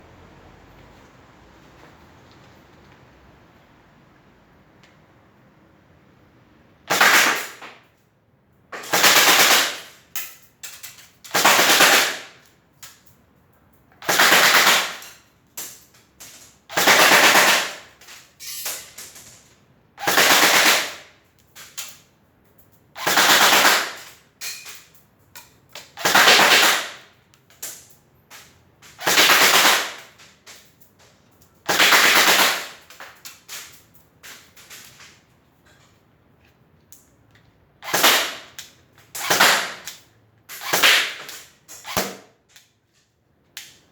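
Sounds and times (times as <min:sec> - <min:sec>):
airsoft gun firing bursts: 0:06.9 - 0:07.7, 0:08.8 - 0:10.0, 0:11.3 - 0:12.4, 0:14.0 - 0:15.0, 0:16.7 - 0:17.9, 0:20.0 - 0:21.1, 0:23.0 - 0:24.0, 0:26.0 - 0:27.1, 0:29.0 - 0:30.2, 0:31.7 - 0:32.8, 0:37.8 - 0:38.5, 0:39.2 - 0:39.9, 0:40.6 - 0:42.2.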